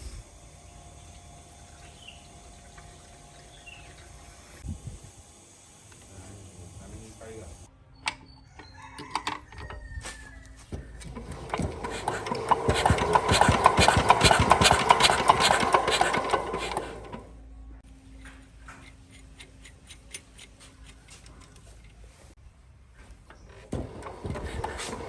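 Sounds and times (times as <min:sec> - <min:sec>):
machine clattering: 0:11.1 - 0:17.2.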